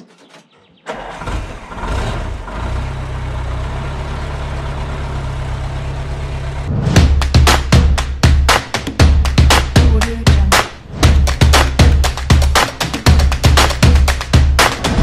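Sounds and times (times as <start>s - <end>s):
engine cranking and starting: 0.0s - 3.3s
engine idling: 0.9s - 8.2s
drum-led music: 6.7s - 15.0s.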